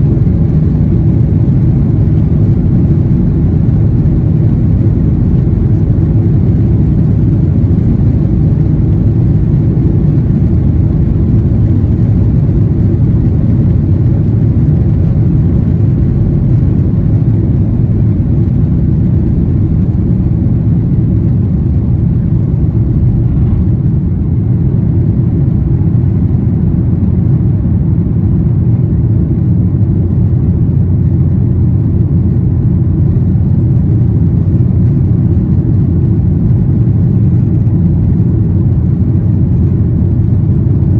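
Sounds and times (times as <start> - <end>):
jet engines low rumble: 0.0 - 40.9.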